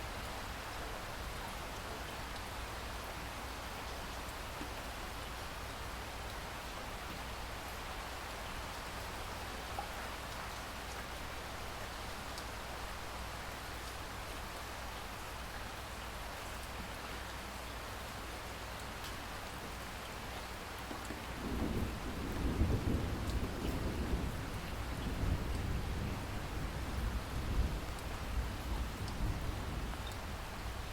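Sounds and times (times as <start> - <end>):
steady rain falling: 0.0 - 30.9
low roll of thunder: 21.2 - 30.9
raindrop ticks: 23.2 - 23.9, 24.5 - 25.8, 27.4 - 28.1, 29.0 - 29.3, 30.0 - 30.3.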